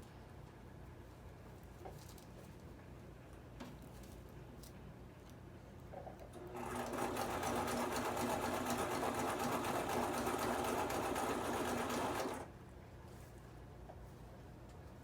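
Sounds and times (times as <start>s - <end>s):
sewing machine running: 6.4s - 12.5s.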